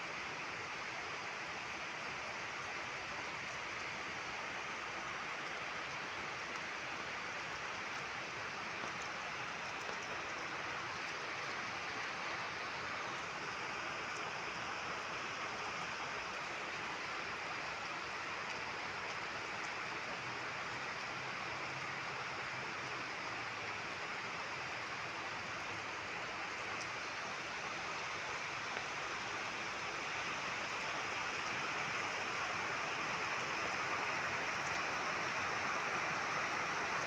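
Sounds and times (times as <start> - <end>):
steady rain: 0.0 - 37.0.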